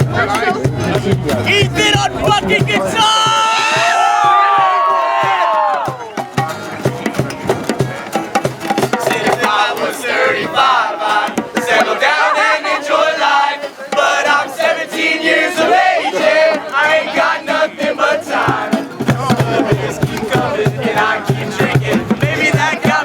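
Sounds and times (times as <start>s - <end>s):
pulsing low beat: 0.0s - 4.8s
group singing and shouting: 0.0s - 6.7s, 8.7s - 23.0s
music: 0.0s - 23.0s.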